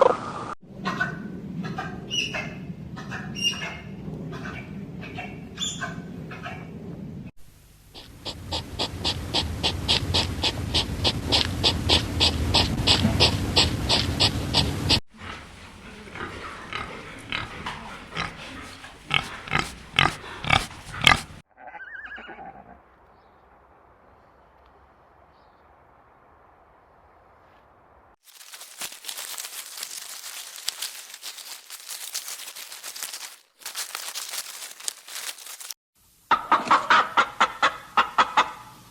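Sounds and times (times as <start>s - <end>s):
animal calls repeated quickly: 8.0s - 15.0s, 16.2s - 22.6s
sharper animal calls: 8.0s - 15.0s.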